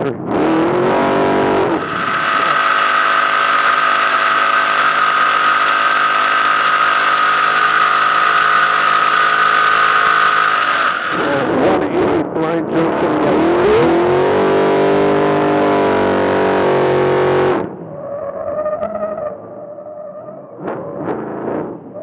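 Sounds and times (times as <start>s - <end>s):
steady engine whine: 0.0s - 22.0s
truck engine revving: 0.3s - 11.9s, 13.2s - 17.7s.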